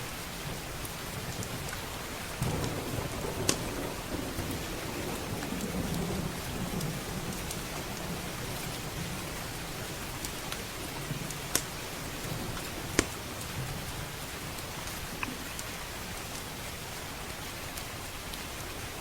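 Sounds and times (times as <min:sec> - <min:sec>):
heavy rain: 0:00.0 - 0:19.0
wood fire crackling: 0:00.8 - 0:13.6
distant thunder rumble: 0:02.3 - 0:13.9.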